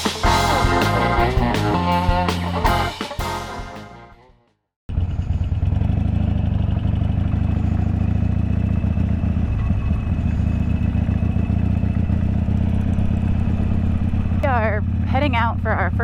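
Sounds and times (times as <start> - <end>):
motorcycle engine running: 0.0 - 3.4, 4.9 - 16.0
music track: 0.0 - 4.3.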